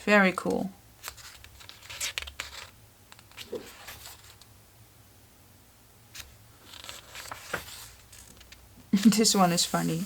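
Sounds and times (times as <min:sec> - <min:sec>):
paper pages rustling: 0:01.0 - 0:04.5, 0:06.1 - 0:10.0.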